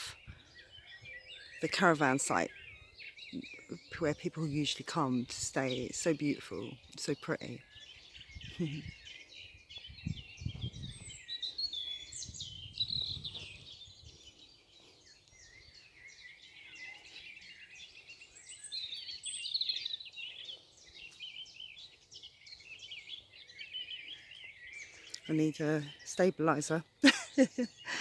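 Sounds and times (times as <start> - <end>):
songbirds singing: 0.0 - 28.0.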